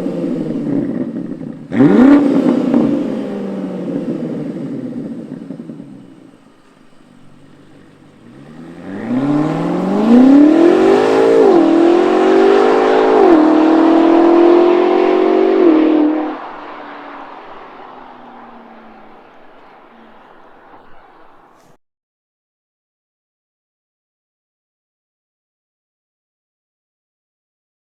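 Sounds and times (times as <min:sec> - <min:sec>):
car engine accelerating hard: 0:00.0 - 0:21.8.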